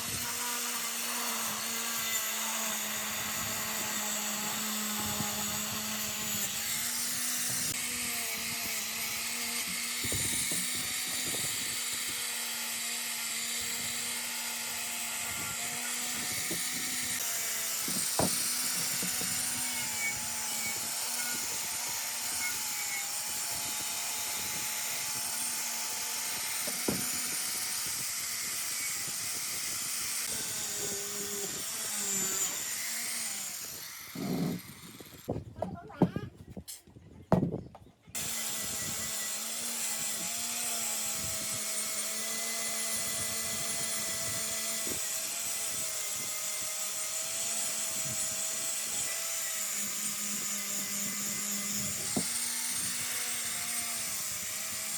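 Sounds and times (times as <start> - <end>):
power tool motor hum: 0.0 - 35.3, 38.1 - 54.9.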